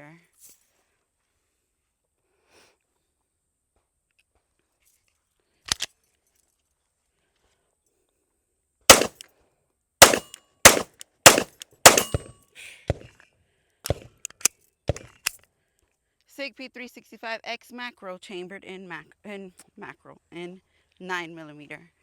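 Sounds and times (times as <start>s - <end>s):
pistol shots: 8.9s - 9.2s, 10.0s - 12.3s
quieter sharp cracks: 8.9s - 9.2s, 10.0s - 12.3s
sharp click: 10.0s - 12.3s.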